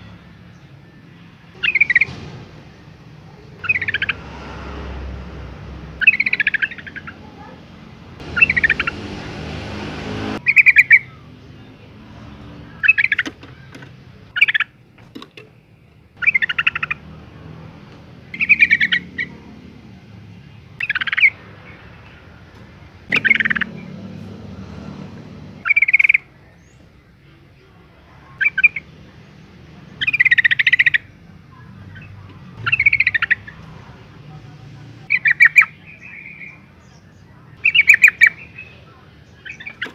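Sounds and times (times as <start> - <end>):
bird chattering calls: 1.6 - 2.2, 3.4 - 4.3, 6.0 - 7.6, 8.2 - 9.3, 10.4 - 11.2, 12.8 - 14.8, 16.2 - 17.2, 18.2 - 19.5, 20.8 - 21.8, 23.1 - 23.9, 25.6 - 26.8, 28.4 - 28.9, 29.9 - 31.2, 31.8 - 33.6, 35.1 - 36.6, 37.6 - 39.9.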